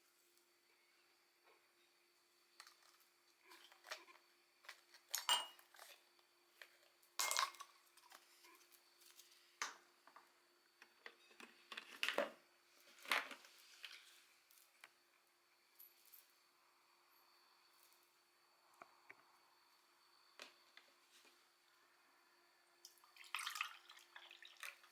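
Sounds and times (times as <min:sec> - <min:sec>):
small hard objects clinking: 0:04.6 - 0:06.0, 0:07.2 - 0:08.2.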